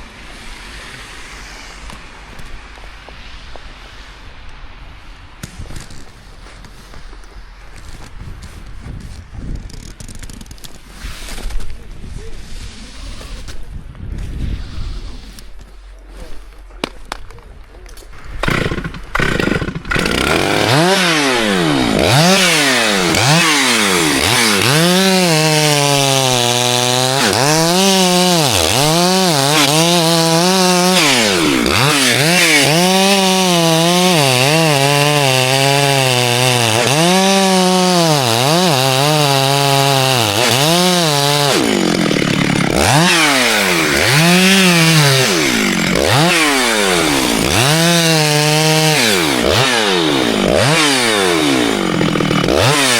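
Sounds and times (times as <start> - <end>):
chainsaw cutting wood: 17.9 - 52.9.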